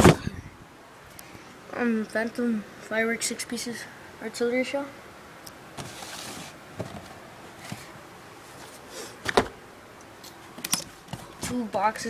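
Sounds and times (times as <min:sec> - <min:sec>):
pack set down with a knock: 0:09.2 - 0:09.6.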